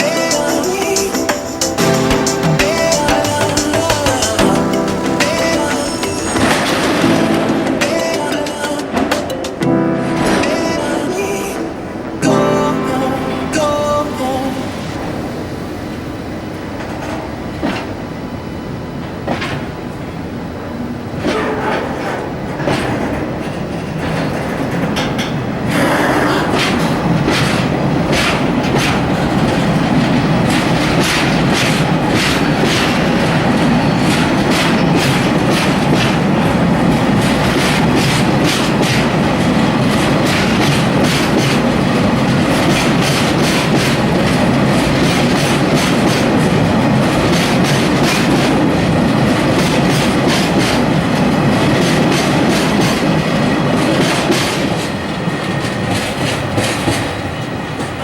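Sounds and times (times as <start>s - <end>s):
train wheels clicking over rail joints: 21.2s - 58.0s.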